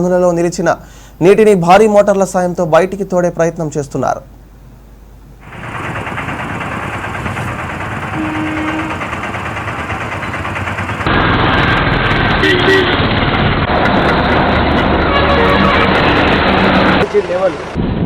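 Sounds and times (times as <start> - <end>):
engine running: 5.4 - 18.0.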